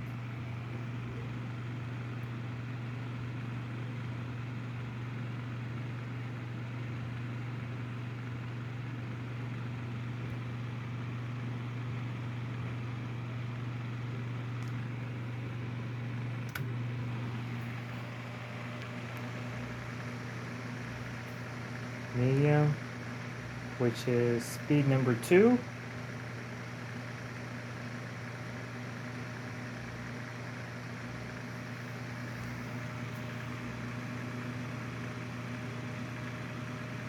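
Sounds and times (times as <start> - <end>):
electric fan humming: 0.0 - 4.6, 7.3 - 37.0
fan switch click: 16.4 - 16.7.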